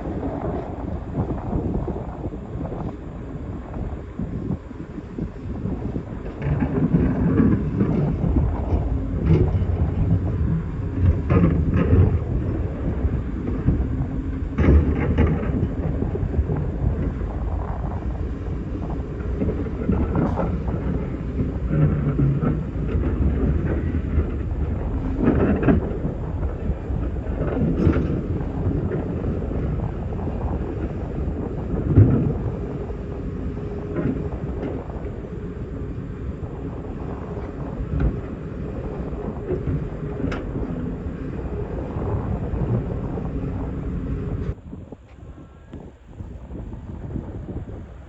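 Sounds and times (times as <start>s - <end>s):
excavator diesel engine running: 0.0s - 44.6s.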